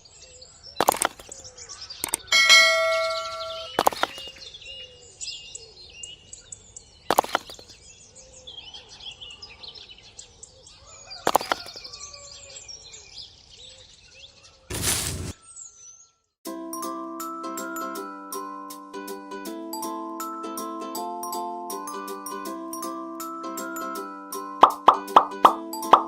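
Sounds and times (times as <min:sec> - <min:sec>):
small birds chirping: 0:00.0 - 0:14.7
sharp click: 0:02.0 - 0:02.3.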